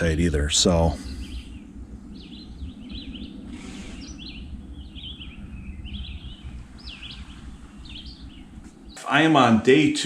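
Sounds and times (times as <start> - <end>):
songbird chirping: 0.0 - 10.0
steady low rumble: 0.0 - 10.0.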